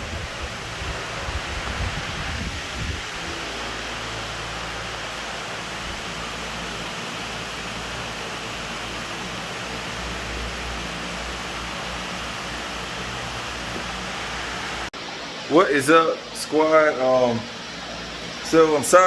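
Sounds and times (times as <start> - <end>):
electric fans whooshing: 0.0 - 19.0.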